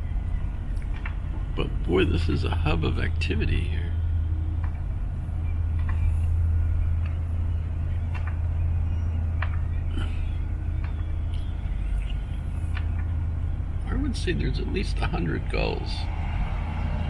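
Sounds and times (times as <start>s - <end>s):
gulls calling: 0.0s - 17.0s
low hum: 0.0s - 17.0s.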